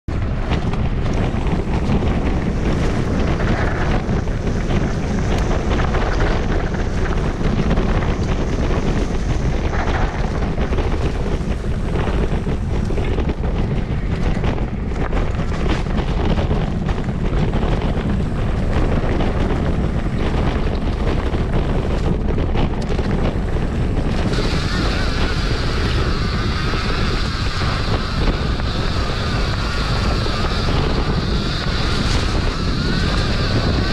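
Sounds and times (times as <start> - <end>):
continuous rushing noise: 0.0 - 33.9
wind buffeting microphone: 0.0 - 33.9.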